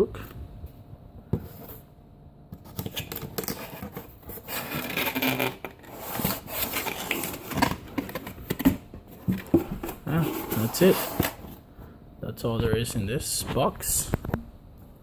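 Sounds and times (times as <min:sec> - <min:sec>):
cardboard packaging rustling and scraping: 0:02.6 - 0:11.6.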